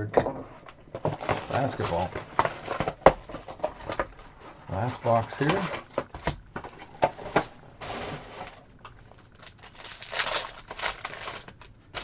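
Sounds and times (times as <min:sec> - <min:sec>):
plastic wrapping crinkling and tearing: 0:01.0 - 0:06.4, 0:07.8 - 0:12.0.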